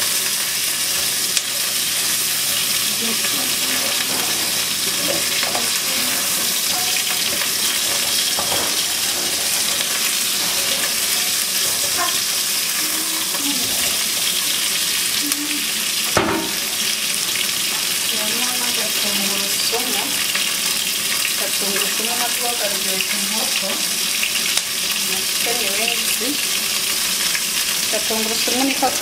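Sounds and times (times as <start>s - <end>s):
chicken wings sizzling in a pan: 0.0s - 29.0s
utensil knocking against pan: 16.1s - 17.0s.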